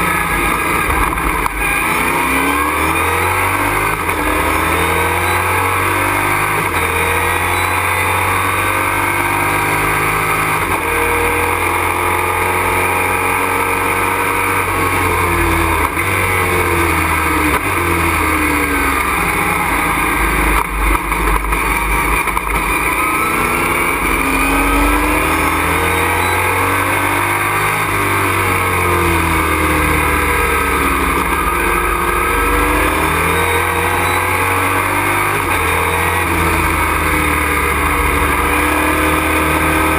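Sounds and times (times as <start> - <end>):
race truck engine revving: 0.0 - 39.9.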